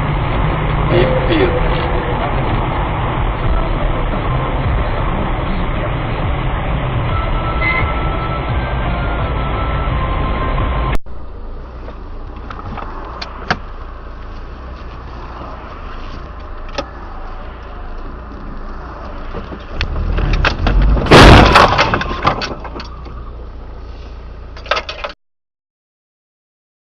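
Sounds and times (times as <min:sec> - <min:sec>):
car road rumble: 0:00.0 - 0:25.2
car crash crunching and breaking: 0:19.1 - 0:23.0
debris rattling: 0:19.1 - 0:23.0.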